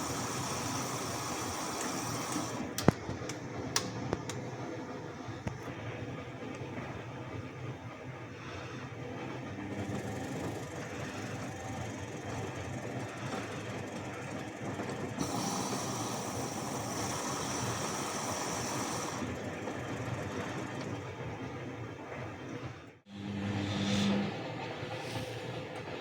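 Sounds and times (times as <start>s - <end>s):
washing machine rumbling: 0.0s - 26.0s
hiss with high whine: 15.2s - 19.3s.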